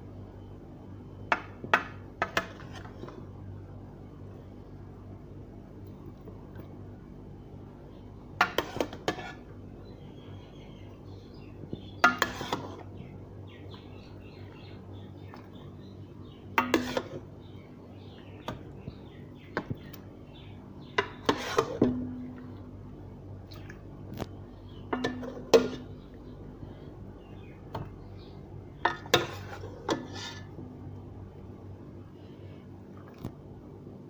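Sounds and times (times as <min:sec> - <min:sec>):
utensils clinking against pot: 0:24.9 - 0:25.8.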